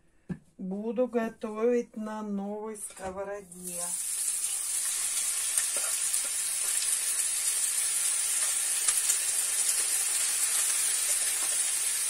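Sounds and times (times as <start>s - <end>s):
meat sizzling in frying pan: 3.6s - 12.0s.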